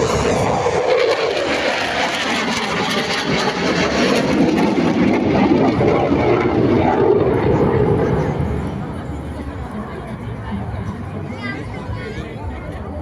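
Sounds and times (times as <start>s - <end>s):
jet fighter flying past: 0.0s - 10.0s.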